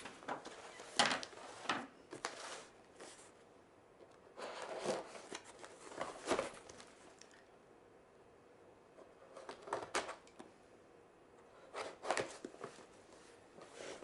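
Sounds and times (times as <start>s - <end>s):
packaging rustling and scraping: 0.0s - 3.3s, 4.4s - 7.0s.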